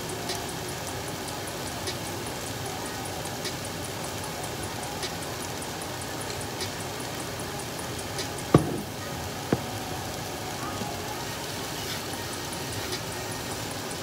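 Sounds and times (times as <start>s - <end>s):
meat and vegetables sizzling: 0.1s - 14.0s
sharp knock: 8.6s - 9.7s.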